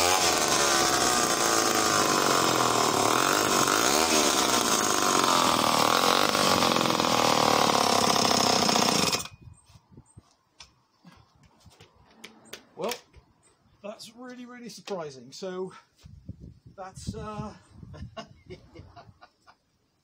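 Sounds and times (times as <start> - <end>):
chainsaw cutting log: 0.0 - 9.4.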